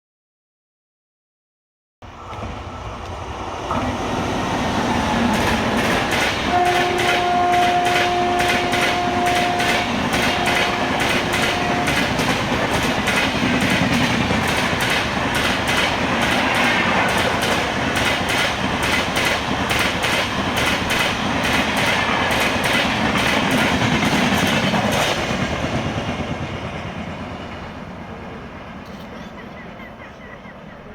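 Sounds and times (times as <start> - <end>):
train passing with rumble: 2.0 - 30.9
wheels clacking over rails: 2.2 - 27.8
train horn blasts: 6.3 - 12.5.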